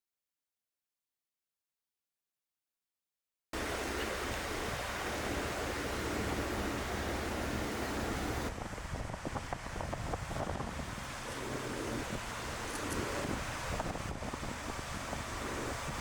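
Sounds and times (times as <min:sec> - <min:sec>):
wind blowing across microphone: 0:03.6 - 0:16.0.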